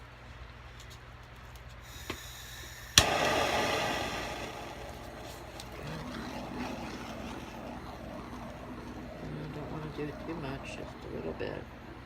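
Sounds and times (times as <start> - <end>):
torch flame hissing: 1.9 - 12.0
torch clicking alight: 2.8 - 10.6.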